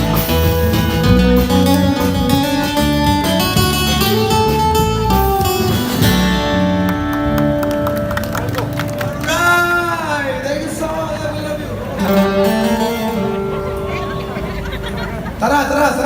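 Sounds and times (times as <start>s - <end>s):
guitar strumming: 0.0s - 10.0s, 11.8s - 15.4s
bass line: 0.0s - 10.1s.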